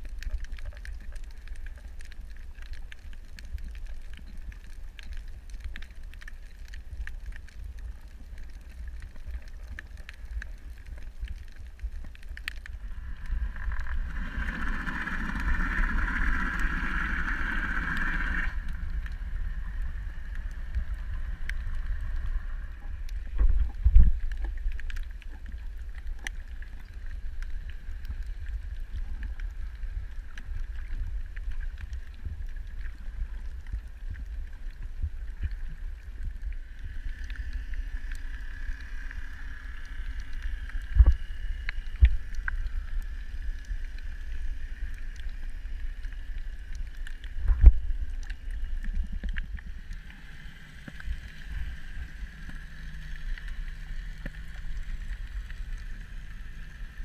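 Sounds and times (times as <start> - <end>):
water noise on microphone: 0.0 - 57.0
steady higher hum: 12.7 - 24.2.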